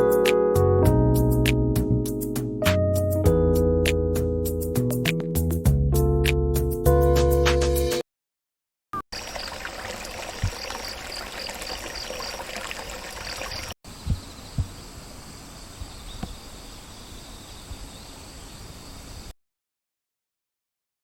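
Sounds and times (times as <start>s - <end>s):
insects trilling: 9.2s - 19.3s
rhythmic insect chirp: 9.2s - 19.3s.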